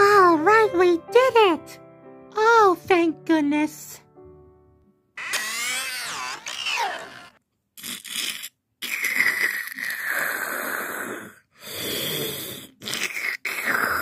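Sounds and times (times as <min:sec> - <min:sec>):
wheezy breathy snoring: 0:07.8 - 0:14.0.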